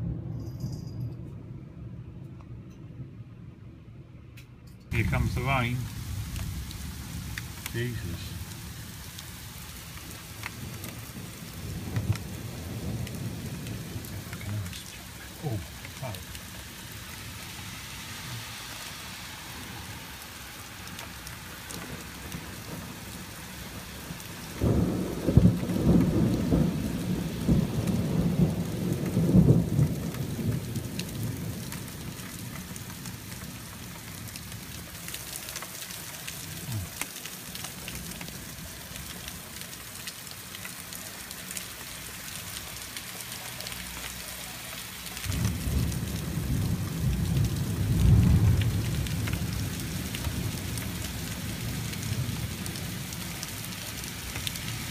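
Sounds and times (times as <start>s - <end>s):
thunder rumbling: 4.9s - 35.2s, 45.1s - 54.9s
heavy rain: 4.9s - 54.9s.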